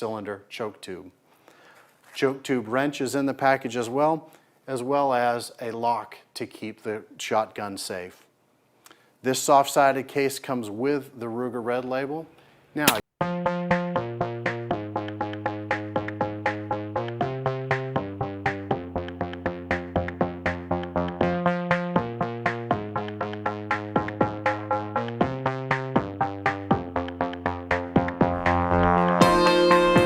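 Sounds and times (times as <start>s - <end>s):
electronic music with synth pulse: 13.2s - 30.0s.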